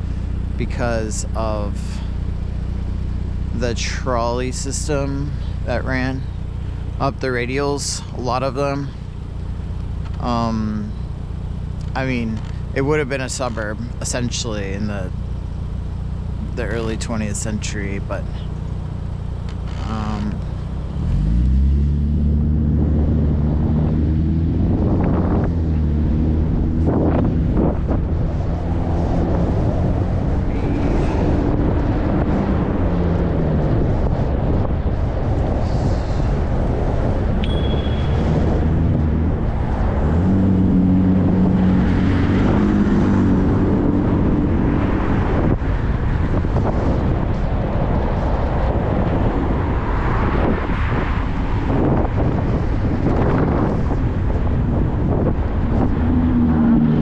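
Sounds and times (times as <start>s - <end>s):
low hum of vehicle engines: 0.0s - 57.0s
wind rushing over microphone: 19.8s - 57.0s
high thin tone: 37.4s - 38.2s.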